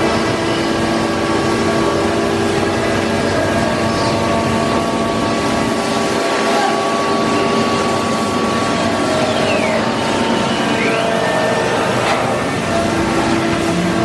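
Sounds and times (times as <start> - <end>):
cnc router running: 0.0 - 14.0
constant whining tones: 0.0 - 14.0
tone sliding downward: 7.0 - 12.7.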